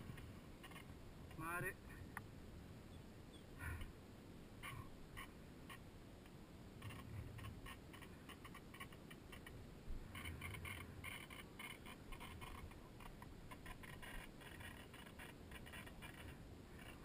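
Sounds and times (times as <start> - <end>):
small animal chirping: 0.1 - 0.9, 6.8 - 17.0.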